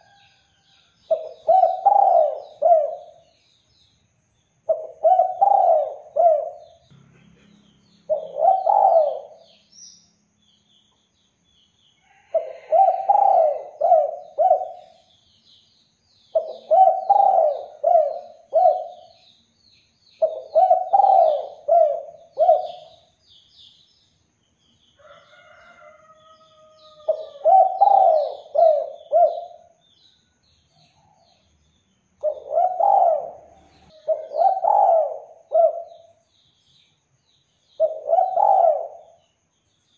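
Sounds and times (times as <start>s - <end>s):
small birds chirping faintly: 0.0s - 39.9s
dove cooing: 1.1s - 3.2s, 4.7s - 6.8s, 8.1s - 9.6s, 12.3s - 15.0s, 16.3s - 19.1s, 20.2s - 23.1s, 26.8s - 29.8s, 32.2s - 36.1s, 37.8s - 39.2s.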